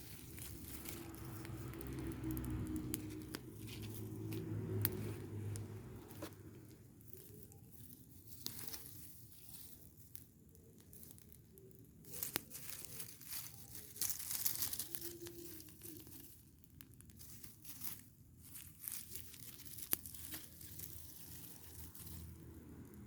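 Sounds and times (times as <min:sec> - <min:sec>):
sharp snaps of fire: 0:00.0 - 0:07.4
fire crackling and rustling: 0:00.0 - 0:23.0.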